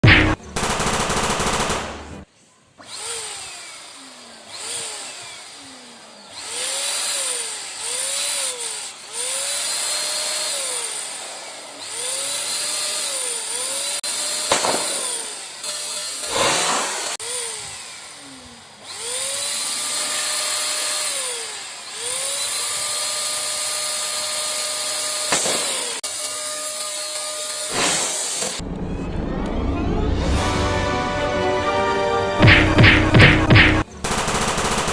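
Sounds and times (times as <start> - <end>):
electric pump motor whirring: 2.8 - 28.6.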